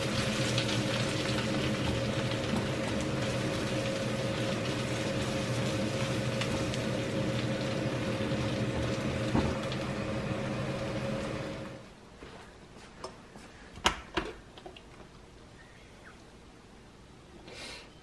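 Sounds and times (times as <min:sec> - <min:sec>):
food sizzling in a wok: 0:00.0 - 0:11.8.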